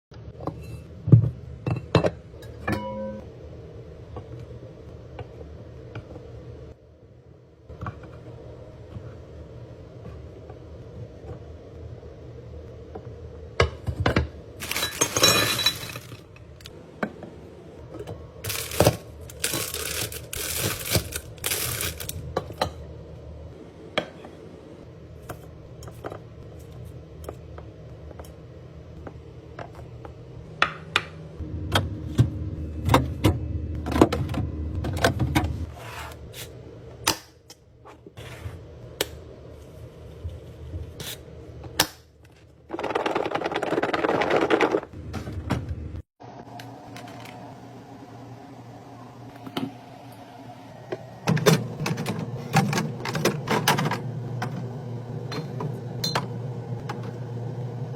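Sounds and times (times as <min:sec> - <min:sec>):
packaging rustling: 0:14.6 - 0:16.2, 0:18.5 - 0:22.2
jars and containers clinking: 0:14.6 - 0:16.4.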